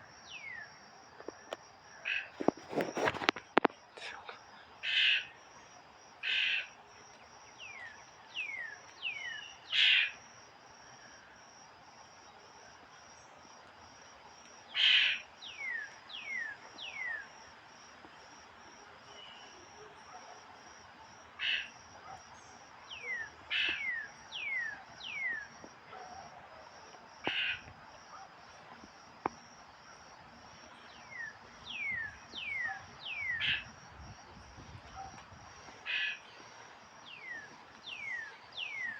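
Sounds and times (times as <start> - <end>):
bird calling: 22.9 - 25.5, 30.8 - 33.7, 35.8 - 36.3, 37.0 - 38.9
high insect drone: 26.7 - 38.9.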